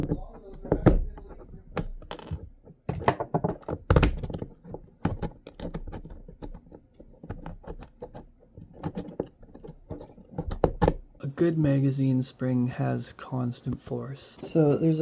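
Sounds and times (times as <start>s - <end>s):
plastic parts clattering: 0.0s - 11.1s
plastic parts clicking and knocking: 0.0s - 11.2s.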